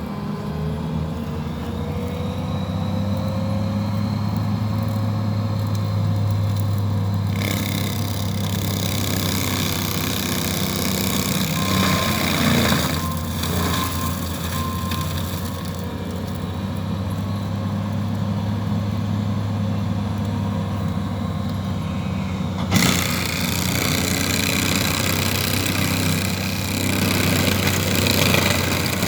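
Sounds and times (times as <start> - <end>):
mulcher engine running: 0.0 - 29.0
wood grinding and splintering: 3.1 - 16.8, 22.3 - 29.0.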